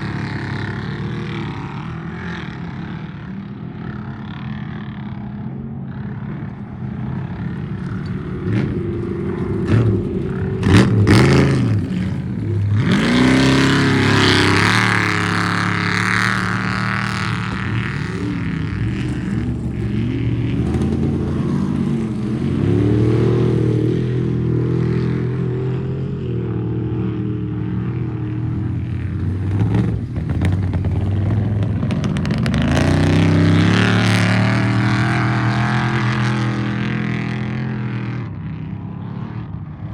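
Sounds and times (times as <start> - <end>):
race engines revving: 0.0 - 39.9.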